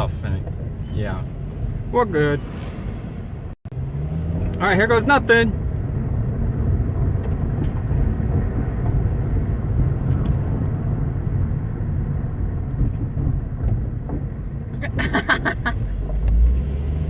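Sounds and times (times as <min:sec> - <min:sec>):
engine and tyre rumble: 0:00.0 - 0:17.0.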